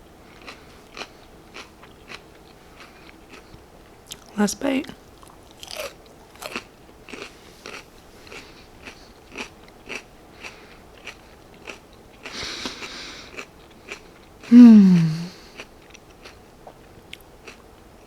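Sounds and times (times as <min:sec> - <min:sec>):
mouth chewing crunchy food: 0:00.3 - 0:18.0.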